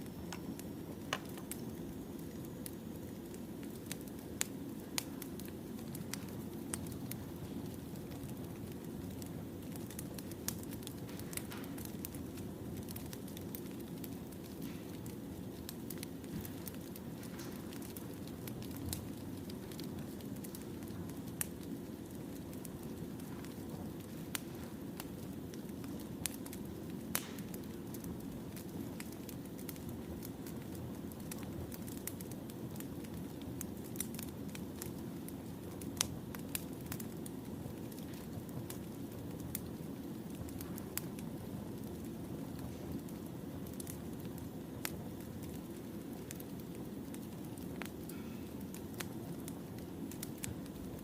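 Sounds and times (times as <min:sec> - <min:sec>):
firewood crackling: 0:00.0 - 0:51.0
low rumble of flames: 0:00.0 - 0:51.0.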